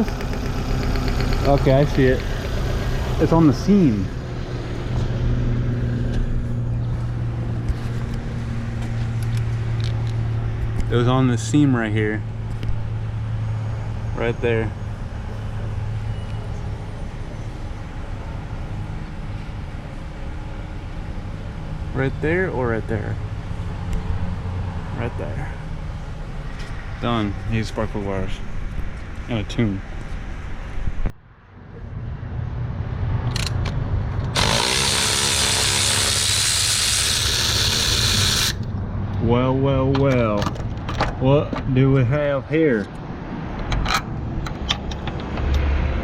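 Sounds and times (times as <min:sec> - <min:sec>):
car engine idling with misfire: 0:00.0 - 0:04.4.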